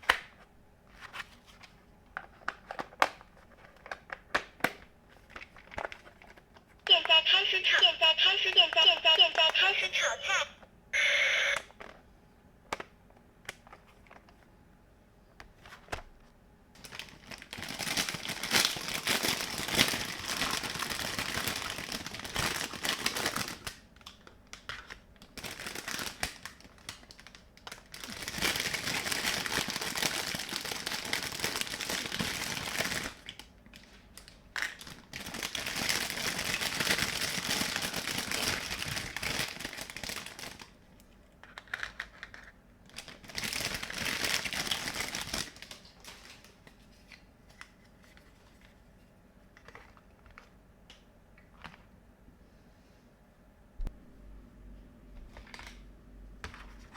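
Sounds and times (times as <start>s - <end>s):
toy speaker sizzle effect: 6.9s - 11.6s.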